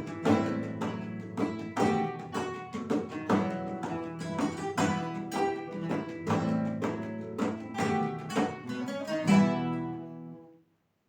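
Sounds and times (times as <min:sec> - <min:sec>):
acoustic guitars strumming chords: 0:00.0 - 0:10.5.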